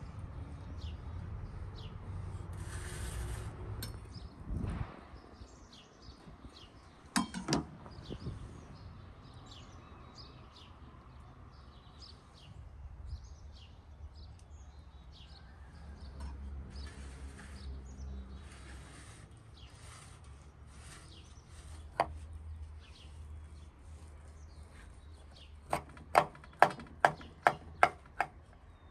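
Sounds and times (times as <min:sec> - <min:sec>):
small birds chirping: 0:00.0 - 0:02.5, 0:05.2 - 0:28.9
sharp knocks: 0:25.7 - 0:28.4.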